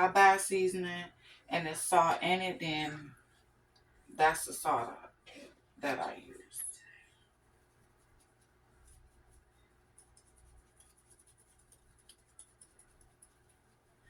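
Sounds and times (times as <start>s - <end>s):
low room hum: 0.0s - 14.0s
light ticks and patter: 5.8s - 14.0s.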